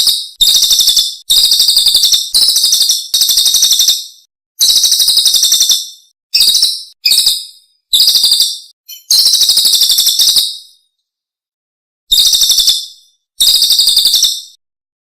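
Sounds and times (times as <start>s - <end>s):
songbird trilling: 1.4s - 10.5s.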